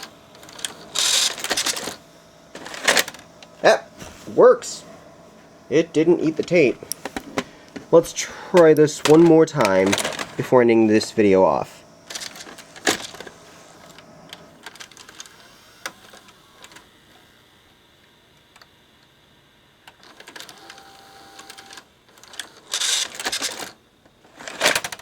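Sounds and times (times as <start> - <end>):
mechanism clatter: 0.0 - 3.5, 8.0 - 10.6, 12.1 - 16.9, 22.2 - 25.0
vcr tape mechanism clicking and whirring: 0.0 - 25.0.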